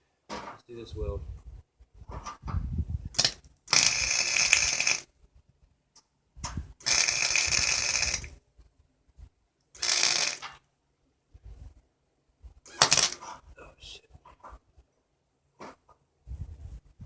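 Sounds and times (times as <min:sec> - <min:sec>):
welder arc crackling: 0:03.2 - 0:05.1, 0:06.8 - 0:08.4, 0:09.8 - 0:10.6, 0:12.7 - 0:13.3.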